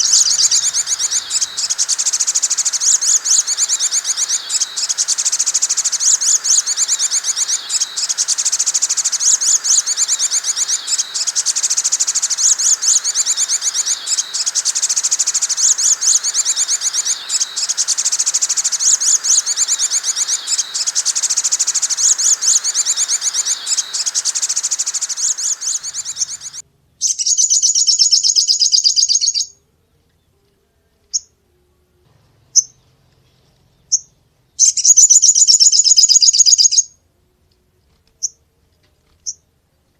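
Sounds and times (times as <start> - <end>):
bird chirping rapidly: 0.0 - 29.5, 34.6 - 36.8.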